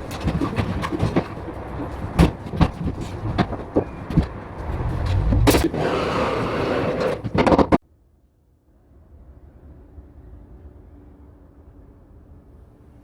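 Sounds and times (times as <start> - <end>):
carpentry knocks and clatter: 0.0 - 5.8, 7.1 - 7.8
low rumble: 4.3 - 6.3.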